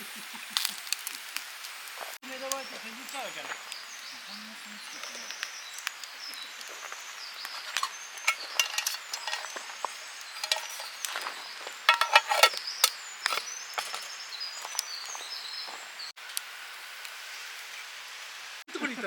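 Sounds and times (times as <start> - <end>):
birds singing faintly: 2.3 - 16.2
utensils tapping: 7.7 - 11.3, 11.9 - 14.1.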